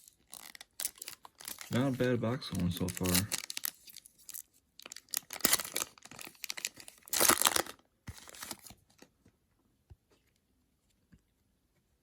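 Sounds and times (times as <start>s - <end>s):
foil wrapper tearing and crinkling: 0.0s - 8.8s.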